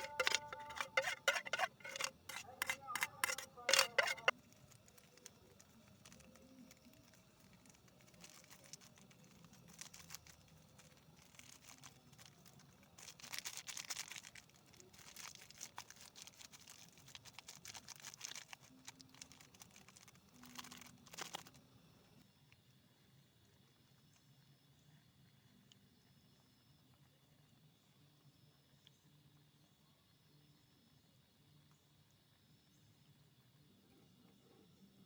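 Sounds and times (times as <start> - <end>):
rustling and crinkling: 0.0 - 22.0.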